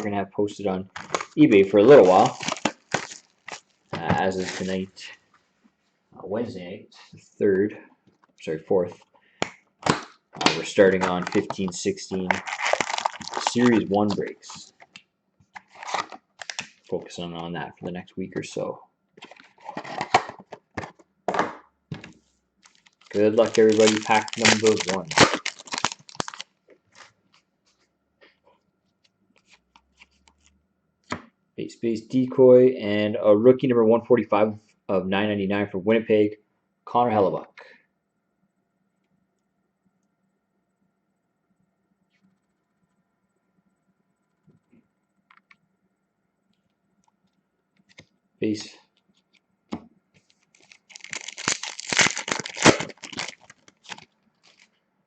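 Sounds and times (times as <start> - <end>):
cards rustling: 0.9 - 4.8, 9.9 - 15.0, 15.6 - 17.0, 22.6 - 27.1, 50.2 - 54.7
foil wrapper tearing and crinkling: 1.0 - 4.8, 10.5 - 14.3, 15.6 - 16.8, 22.6 - 27.1, 50.4 - 54.7.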